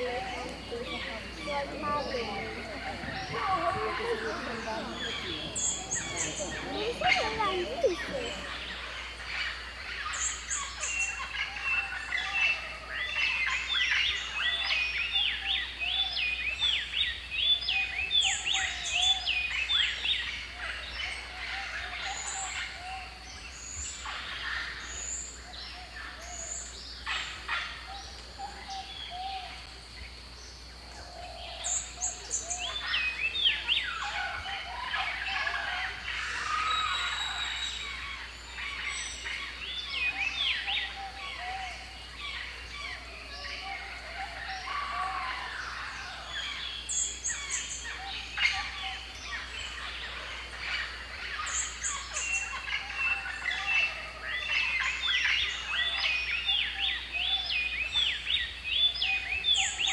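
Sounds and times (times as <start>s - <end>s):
lower bird calls: 0.0s - 9.3s
birds chirping: 0.0s - 9.6s.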